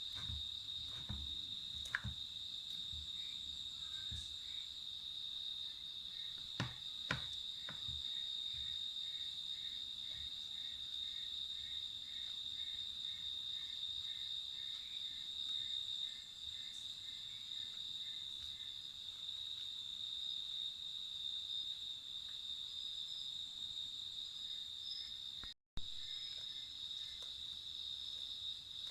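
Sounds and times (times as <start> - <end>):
sharp knocks: 6.4 - 8.0.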